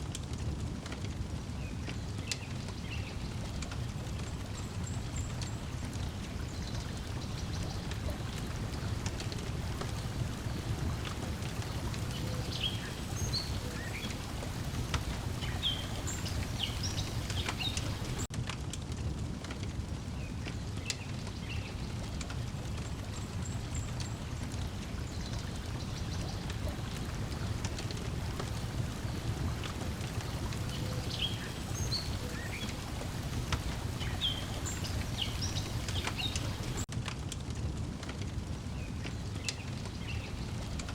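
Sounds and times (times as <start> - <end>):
wood fire crackling: 0.0 - 40.9
water lapping at shore: 1.1 - 18.3, 21.4 - 36.9
birds chirping: 6.4 - 18.3, 25.0 - 36.8.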